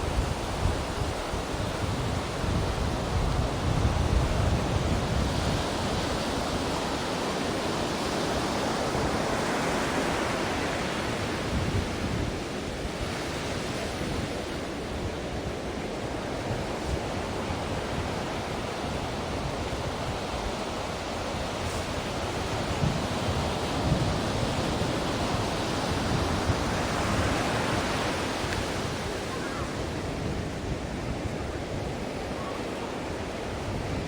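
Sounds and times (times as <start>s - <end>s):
ocean waves breaking: 0.0s - 34.0s.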